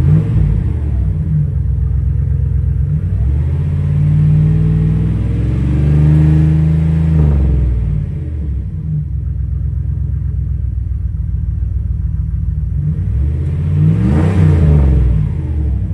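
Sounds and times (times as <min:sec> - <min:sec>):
truck engine revving: 0:00.0 - 0:01.6, 0:02.7 - 0:08.6, 0:12.7 - 0:15.9.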